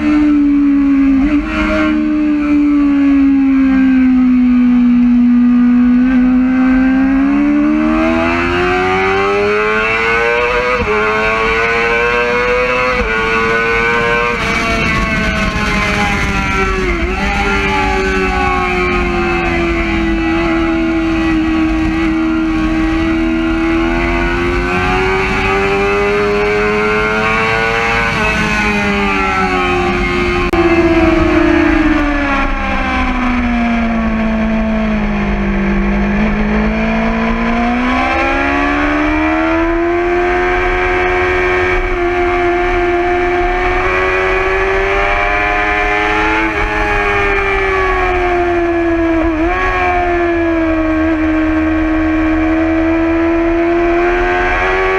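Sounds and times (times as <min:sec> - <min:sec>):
motorcycle engine at high revs: 0:00.0 - 0:54.9
wind noise: 0:07.1 - 0:54.9.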